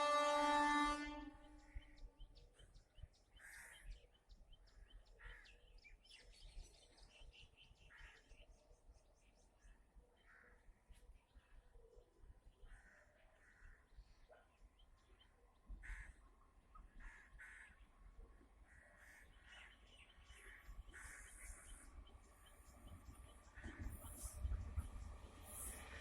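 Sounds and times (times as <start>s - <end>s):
crows cawing: 15.8s - 16.2s, 17.0s - 17.8s.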